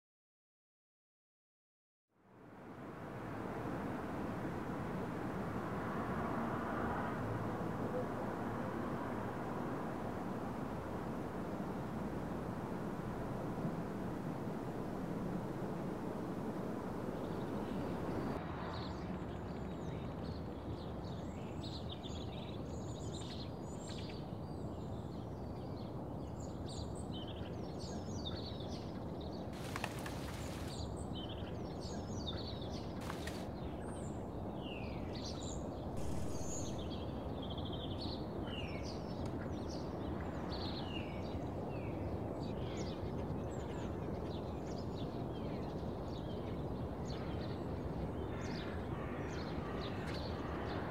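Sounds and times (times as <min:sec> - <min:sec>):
small birds chirping: 0:27.3 - 0:34.2, 0:34.8 - 0:37.9
low background rumble: 0:36.0 - 0:37.1.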